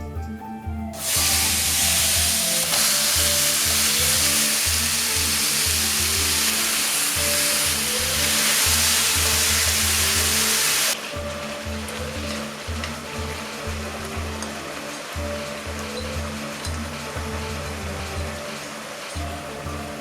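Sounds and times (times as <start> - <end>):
background music: 0.0 - 20.0
meat sizzling in a frying pan: 1.0 - 11.0.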